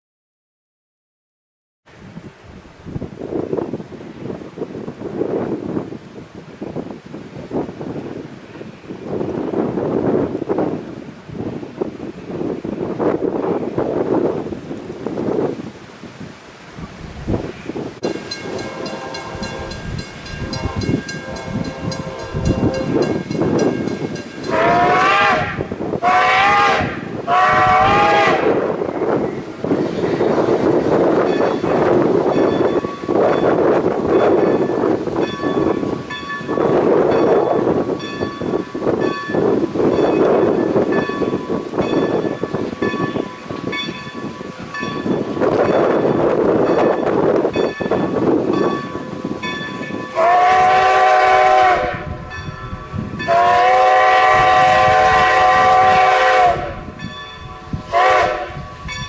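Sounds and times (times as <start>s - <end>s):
train rumbling by: 3.1s - 59.0s
bell ringing: 18.0s - 24.8s, 29.9s - 50.2s, 52.3s - 53.4s, 57.0s - 57.9s, 58.6s - 59.0s
wavering train whistle blasts: 18.0s - 59.0s.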